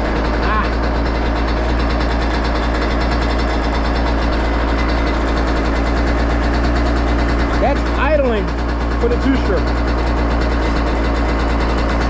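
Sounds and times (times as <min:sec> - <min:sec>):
two-stroke engine idling: 0:00.0 - 0:12.0.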